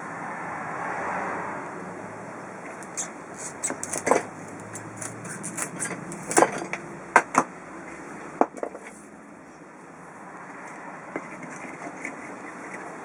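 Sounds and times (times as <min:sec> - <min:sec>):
sharp knocks and clicks: 0:03.7 - 0:07.5.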